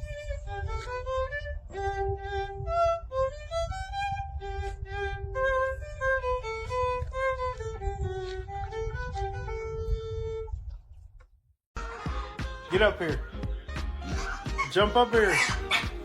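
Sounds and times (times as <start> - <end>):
lively violin melody: 0.0 - 9.9, 11.8 - 16.0
low rumble: 0.0 - 10.9.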